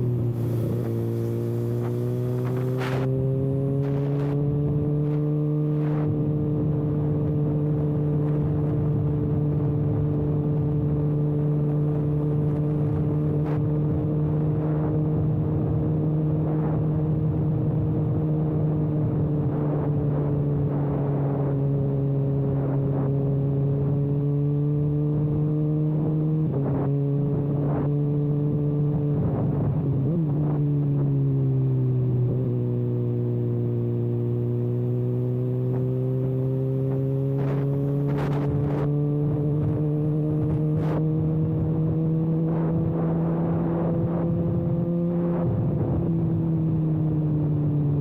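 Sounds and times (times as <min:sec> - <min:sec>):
motorcycle engine running: 0:00.0 - 0:19.8, 0:32.1 - 0:48.0.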